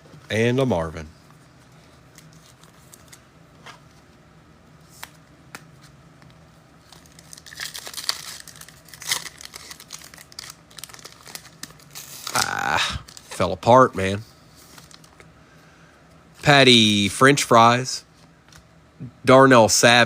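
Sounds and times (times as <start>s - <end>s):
foil wrapper crinkling and tearing: 6.8s - 13.4s, 14.6s - 15.3s.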